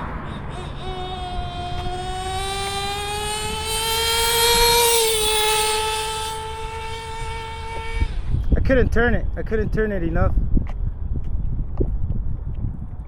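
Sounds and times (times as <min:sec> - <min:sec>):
nitro engine whine: 0:00.0 - 0:11.2.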